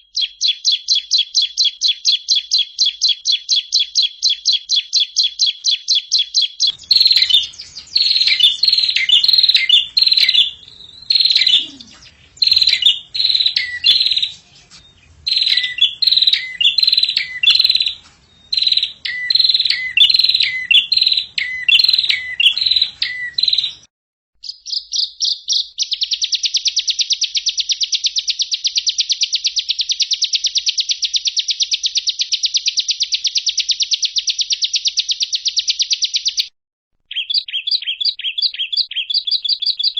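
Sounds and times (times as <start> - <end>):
songbird whistled phrases: 0.1 - 23.9, 37.1 - 39.9
fast bird trill: 0.1 - 30.6.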